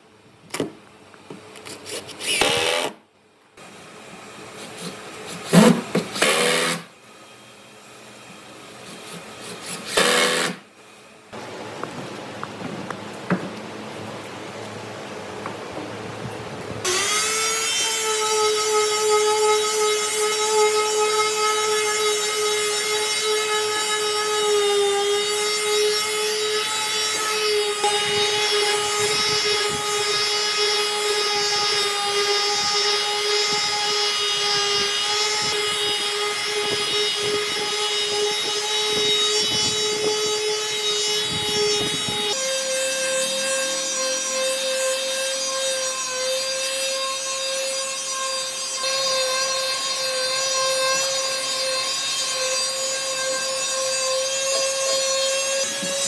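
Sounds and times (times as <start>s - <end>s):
wood lathe whine: 16.8s - 56.0s.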